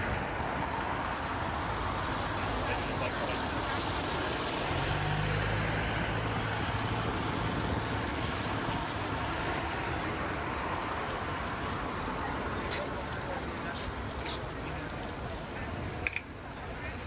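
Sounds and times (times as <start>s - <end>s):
city background noise: 0.0s - 17.0s
passing vehicle engine hum: 1.8s - 14.7s.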